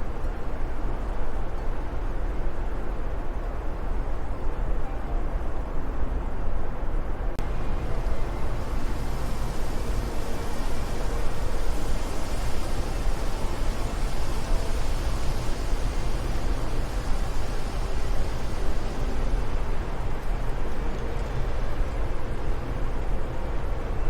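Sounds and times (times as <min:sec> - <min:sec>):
wind blowing: 0:07.1 - 0:24.0.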